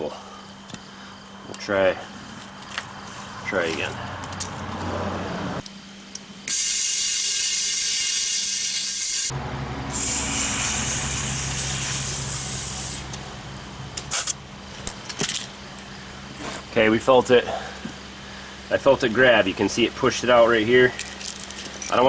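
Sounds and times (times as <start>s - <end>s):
compressed air hissing into tire: 6.4s - 9.3s, 9.9s - 13.2s, 14.0s - 14.4s.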